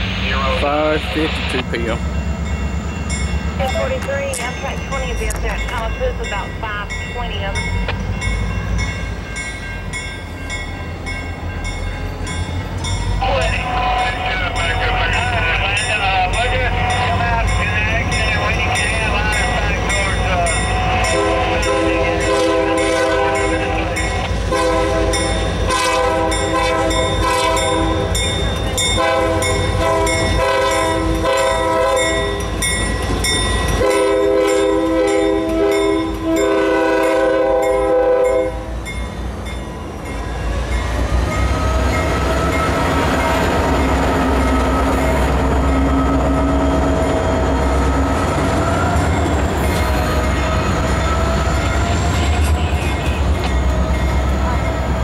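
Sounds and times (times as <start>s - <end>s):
freight train rumbling past: 0.0s - 55.0s
crossing bell clanging: 0.4s - 55.0s
train air horn blasts: 20.9s - 23.9s, 24.5s - 28.2s, 29.0s - 32.4s, 33.8s - 38.7s.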